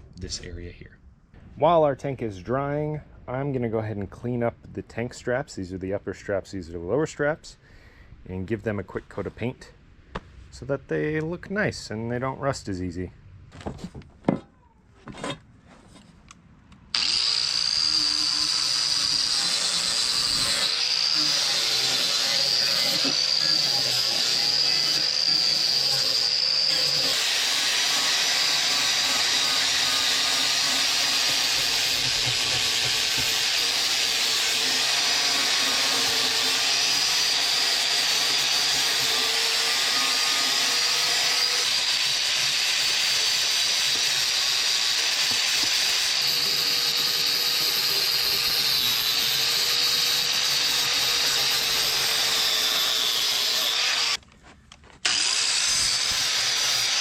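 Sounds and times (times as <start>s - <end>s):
grinder removing rust from steel: 16.9s - 54.2s, 55.0s - 57.0s.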